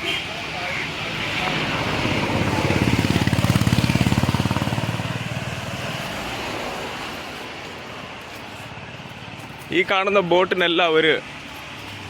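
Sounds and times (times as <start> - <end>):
engine chugging past: 1.6 - 6.7.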